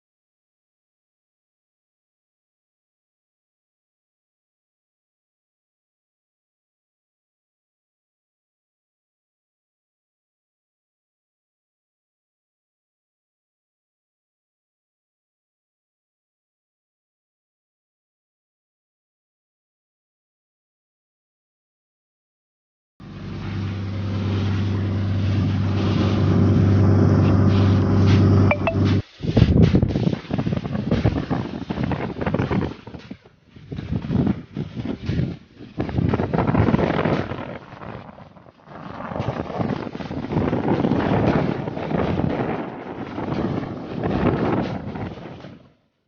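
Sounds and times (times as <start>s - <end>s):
boat engine droning: 23.0s - 29.0s
boat rushing through water: 23.0s - 45.8s
wind gusting on microphone: 23.9s - 45.8s
short high chirps: 28.4s - 29.0s.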